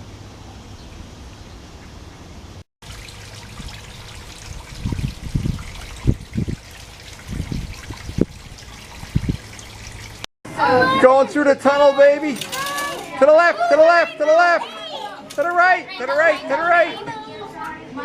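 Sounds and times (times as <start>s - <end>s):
water trickling: 2.8s - 10.3s.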